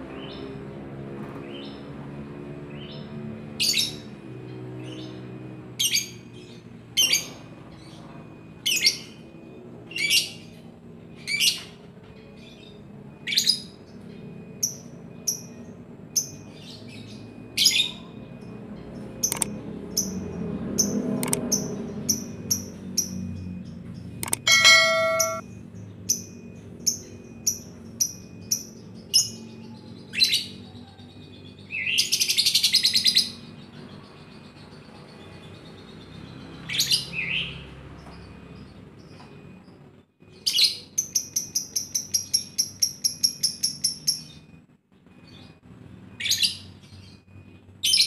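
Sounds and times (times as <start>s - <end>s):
lovebird chirping: 4.8s - 20.2s, 20.8s - 25.4s.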